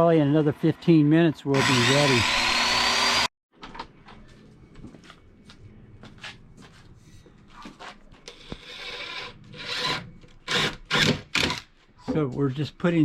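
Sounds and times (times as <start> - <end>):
scuffing: 4.3 - 8.3.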